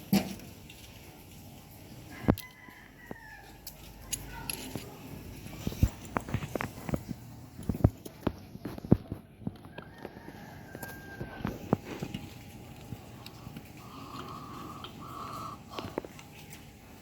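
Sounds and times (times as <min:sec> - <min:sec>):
rooster crowing faintly: 0:02.1 - 0:04.5, 0:09.6 - 0:12.1.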